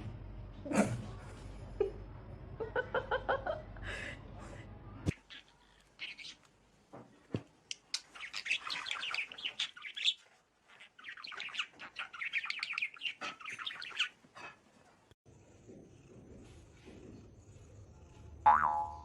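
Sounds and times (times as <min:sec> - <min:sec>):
bird chirping rapidly: 0:07.8 - 0:14.2.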